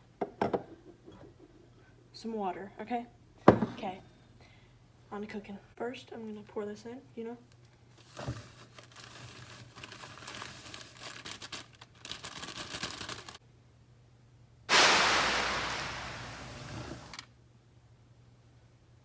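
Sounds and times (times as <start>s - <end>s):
cake mix pouring from packet: 8.7s - 13.4s
loud rushing noise: 14.7s - 17.2s.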